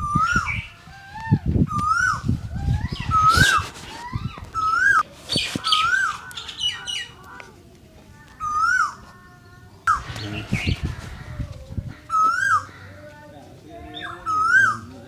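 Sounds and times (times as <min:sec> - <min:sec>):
bird chirping: 0:08.4 - 0:12.7.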